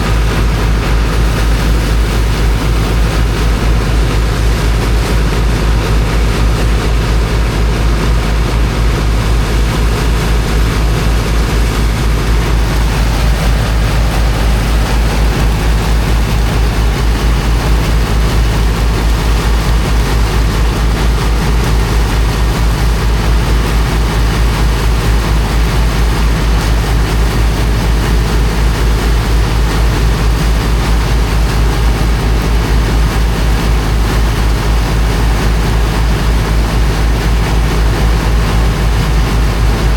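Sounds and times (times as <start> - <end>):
water pump engine running: 0.0 - 39.9
rushing hiss: 1.2 - 3.6.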